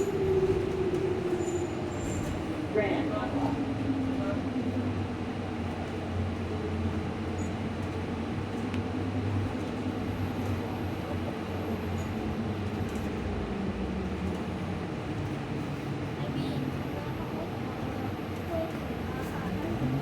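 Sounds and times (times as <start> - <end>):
road rumble: 0.0 - 20.0.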